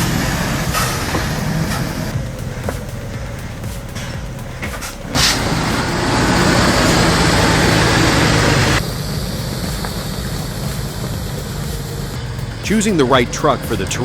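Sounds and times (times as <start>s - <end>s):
heavy truck engine under load: 0.0s - 14.0s.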